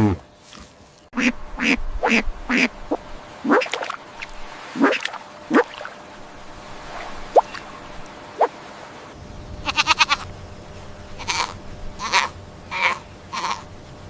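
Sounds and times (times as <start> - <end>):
ducks quacking: 1.2 - 4.2, 11.2 - 13.7.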